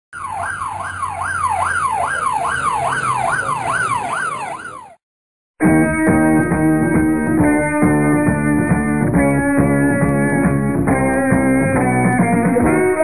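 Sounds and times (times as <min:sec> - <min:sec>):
emergency vehicle siren: 0:00.1 - 0:05.0
guitar music: 0:05.6 - 0:13.0.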